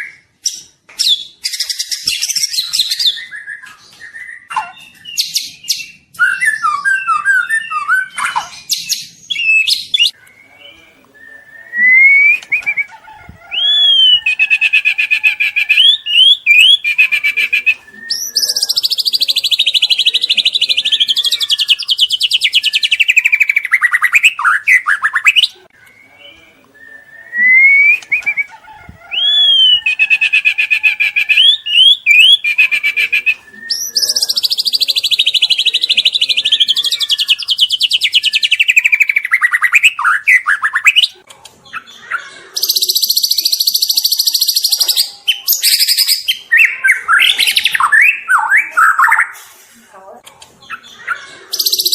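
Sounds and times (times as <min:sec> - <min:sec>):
bird singing loudly: 0:01.1 - 0:25.6, 0:29.1 - 0:41.1.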